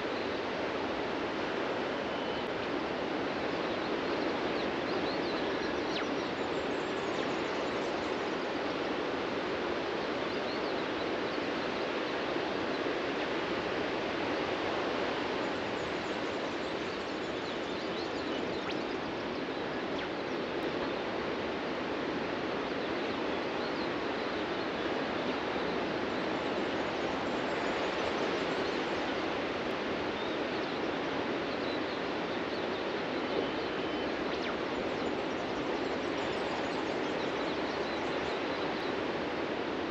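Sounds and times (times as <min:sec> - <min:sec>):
faint bird chirps: 0:01.9 - 0:02.8, 0:03.4 - 0:08.6, 0:15.4 - 0:21.2, 0:30.1 - 0:39.0.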